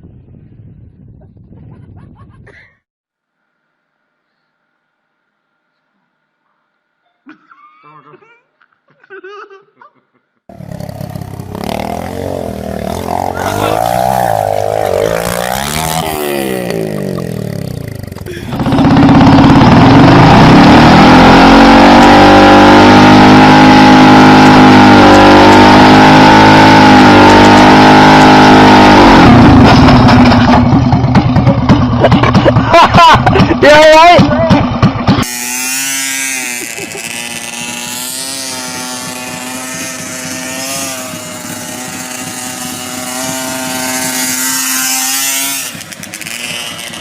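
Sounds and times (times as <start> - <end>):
motorcycle engine revving: 10.5 - 47.0.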